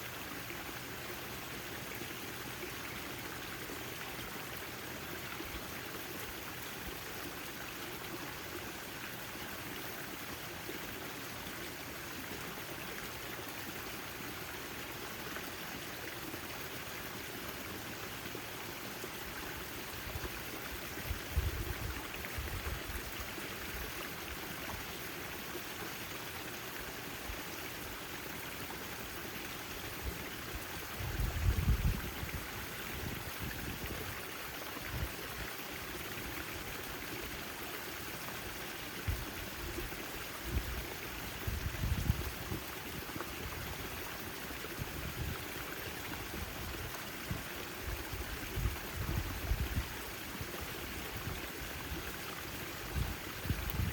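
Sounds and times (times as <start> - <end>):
fountain water splashing: 0.0 - 53.9.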